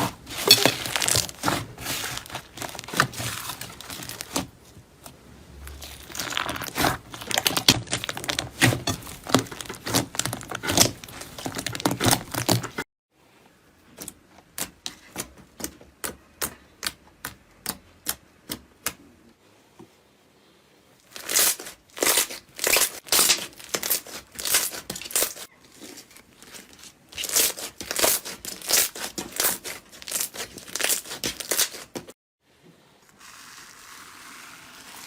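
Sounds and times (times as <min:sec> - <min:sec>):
slime crackling and popping: 0:05.7 - 0:12.5.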